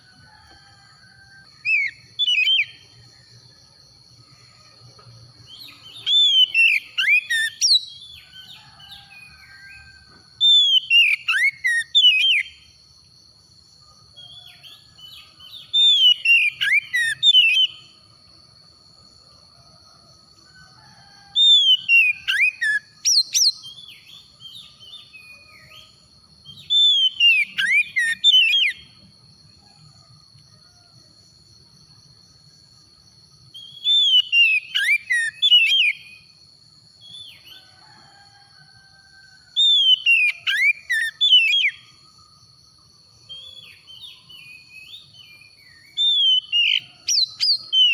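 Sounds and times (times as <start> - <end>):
bird singing whistled phrases: 5.7 - 8.1, 10.5 - 12.5, 15.8 - 17.8, 26.6 - 28.8, 33.6 - 36.2, 43.4 - 47.9.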